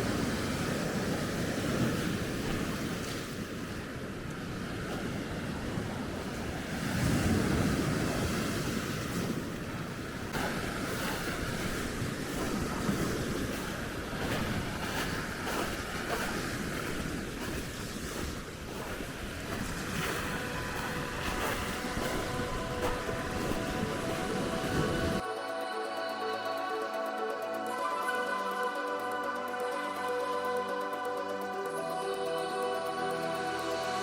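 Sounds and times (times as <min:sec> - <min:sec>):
surf washing onto shore: 0:00.0 - 0:25.2
wind buffeting microphone: 0:00.0 - 0:25.2.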